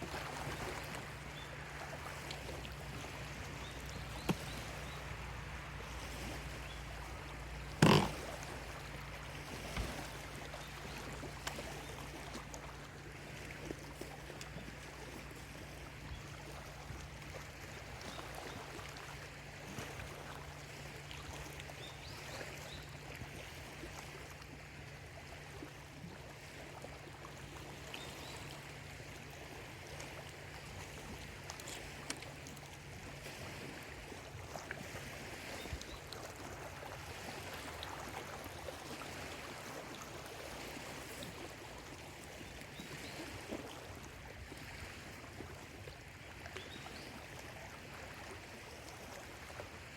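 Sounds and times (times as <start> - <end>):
waves lapping against shore: 0.0 - 49.9.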